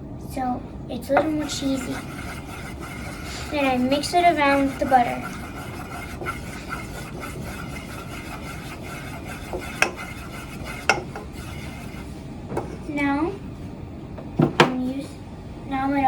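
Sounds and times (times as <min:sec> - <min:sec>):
spoon scraping cooking pot: 0:01.1 - 0:12.9
spoon clinking against pot: 0:10.7 - 0:11.3.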